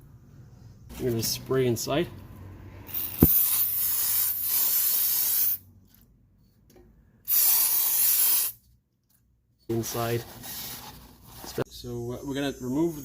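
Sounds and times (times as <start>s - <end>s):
spray can hissing: 2.9s - 5.6s, 7.3s - 8.6s.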